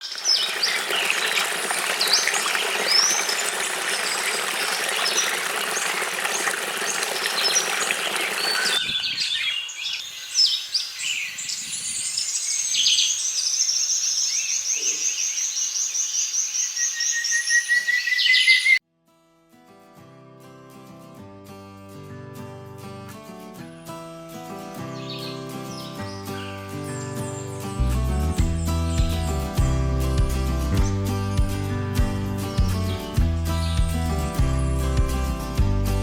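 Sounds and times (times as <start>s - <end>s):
birds calling: 0.0s - 18.8s.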